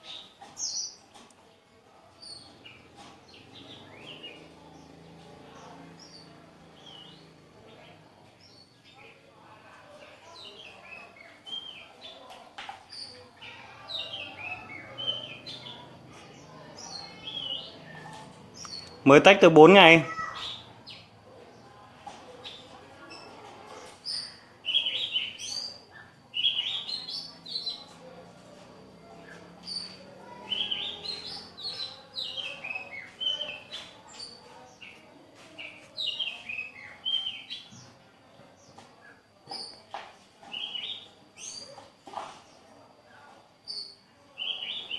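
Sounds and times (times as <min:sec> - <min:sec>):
small birds chirping: 0:00.0 - 0:44.9
songbird singing whistled notes: 0:12.9 - 0:19.0, 0:24.0 - 0:28.0, 0:29.2 - 0:35.0, 0:35.6 - 0:38.0, 0:40.5 - 0:41.8, 0:43.6 - 0:44.9.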